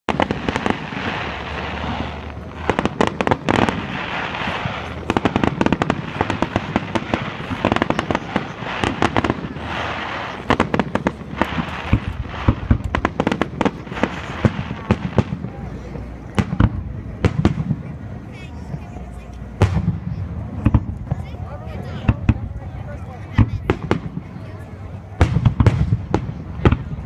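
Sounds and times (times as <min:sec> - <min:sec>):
fireworks hiss: 0:00.1 - 0:17.6
fireworks bangs and crackles: 0:00.1 - 0:27.0.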